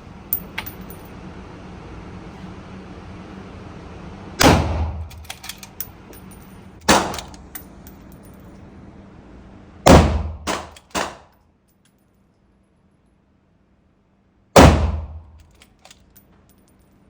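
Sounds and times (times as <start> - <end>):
rifle shots: 4.4 - 5.1, 6.9 - 7.4, 9.9 - 11.2, 14.6 - 15.2.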